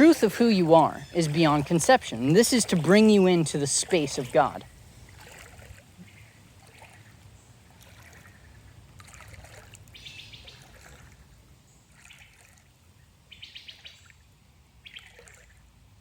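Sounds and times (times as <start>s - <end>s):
birds trilling: 0.0s - 2.8s
stream trickling: 0.0s - 16.0s.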